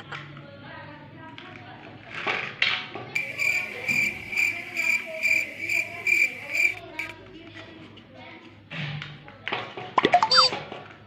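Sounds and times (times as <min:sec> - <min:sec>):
cricket-like chirping: 0:03.2 - 0:07.1.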